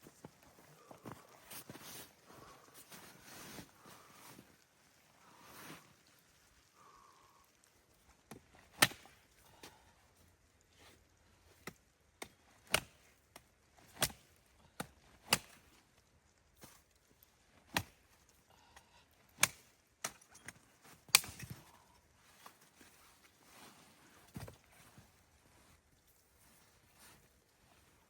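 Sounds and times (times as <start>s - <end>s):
wood being chopped: 8.7s - 9.1s, 11.6s - 13.1s, 13.9s - 15.6s, 17.7s - 18.0s, 19.4s - 20.2s, 21.1s - 21.6s.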